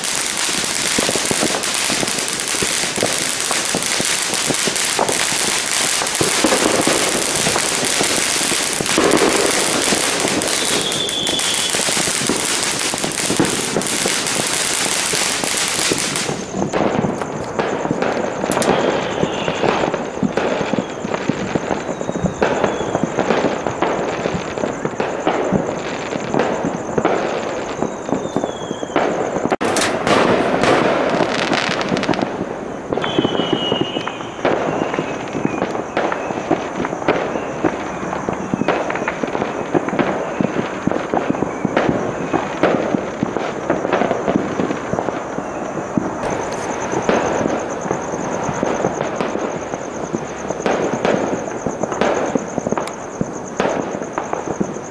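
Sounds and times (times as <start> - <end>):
fireworks crackling and banging: 0.0 - 54.9
whistles falling in pitch: 10.5 - 11.9, 27.7 - 29.0, 33.0 - 36.4.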